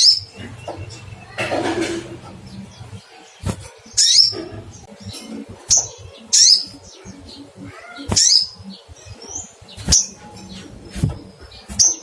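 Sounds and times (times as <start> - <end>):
faint bird chirps: 0.0 - 12.0
sunbird sharp high calls: 5.7 - 10.2.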